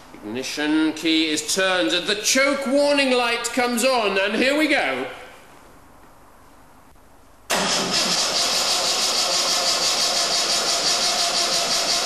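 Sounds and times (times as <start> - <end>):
car engine starting and running: 7.5 - 12.0.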